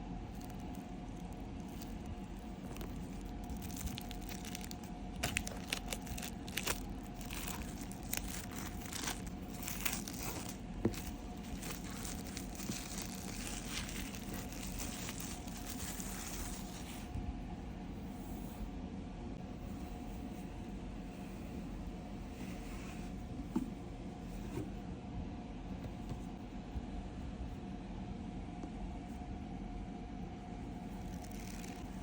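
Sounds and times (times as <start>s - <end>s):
steady low hum: 0.0s - 32.0s
packaging crinkling and tearing: 0.3s - 17.1s, 31.0s - 32.0s.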